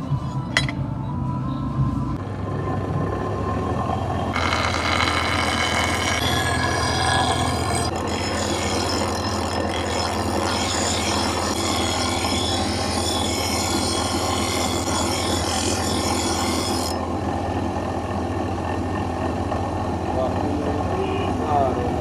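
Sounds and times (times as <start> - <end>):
steel grinding rasp: 4.3 - 17.1
grinder motor humming: 4.3 - 22.0.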